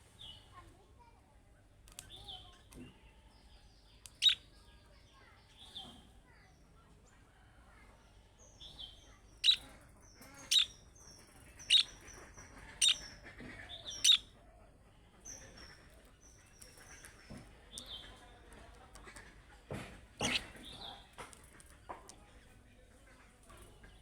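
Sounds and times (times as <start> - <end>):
budgerigars chirping and twittering: 4.1 - 4.4, 8.6 - 14.4, 15.1 - 19.2, 20.2 - 21.9
sharp loud bird calls: 4.1 - 4.4, 8.6 - 14.3, 20.2 - 20.9.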